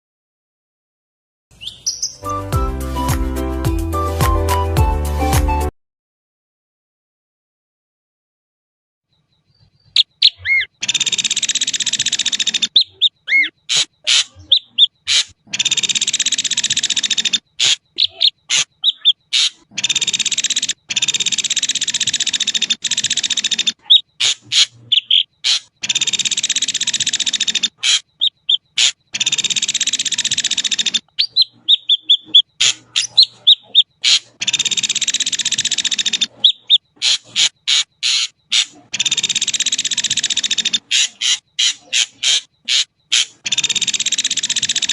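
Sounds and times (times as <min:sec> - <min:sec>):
bird whistled notes: 0:01.6 - 0:02.5, 0:31.2 - 0:34.7
bird harsh rasping calls: 0:09.6 - 0:44.9
sharp bird clicks: 0:09.6 - 0:44.9.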